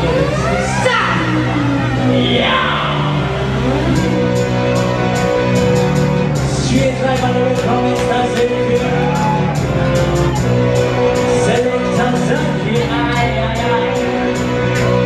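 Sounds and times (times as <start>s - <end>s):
person singing: 0.0s - 4.7s, 6.5s - 9.4s, 11.2s - 14.4s
dub reggae music: 0.0s - 15.0s.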